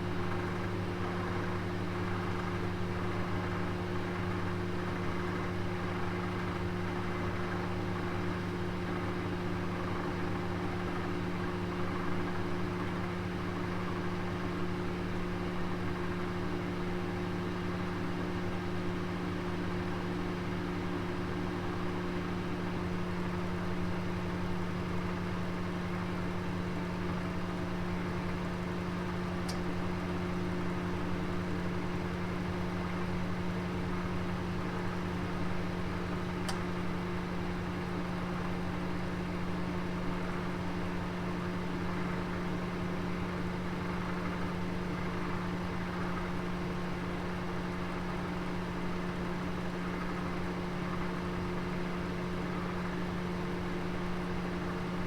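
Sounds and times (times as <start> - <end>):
oven humming: 26.7 - 31.2.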